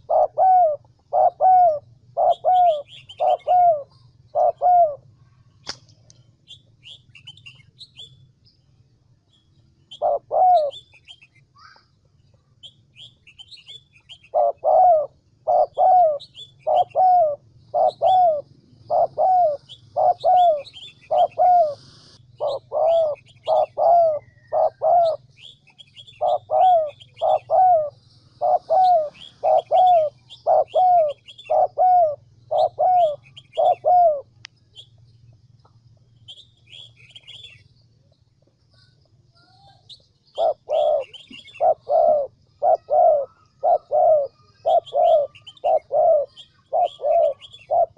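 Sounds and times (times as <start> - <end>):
high chirps of small birds: 0.0 - 5.0, 6.4 - 47.9
dove cooing: 0.0 - 5.4, 9.9 - 10.9, 13.6 - 34.4, 40.3 - 47.9
steady low hum: 0.0 - 47.9.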